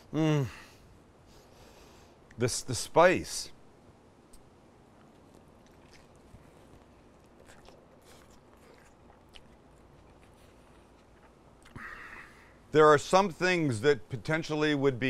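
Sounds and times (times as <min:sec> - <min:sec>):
faint chewing: 0:04.3 - 0:12.6.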